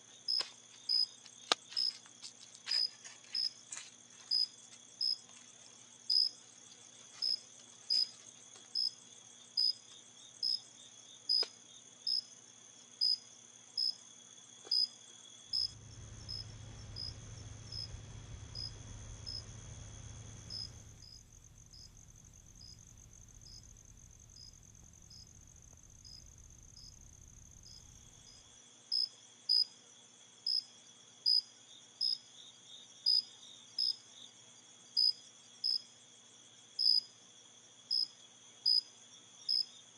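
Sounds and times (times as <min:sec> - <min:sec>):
insect chirps: 0:00.0 - 0:39.9
insects trilling: 0:00.0 - 0:39.9
low rumble: 0:15.7 - 0:28.3.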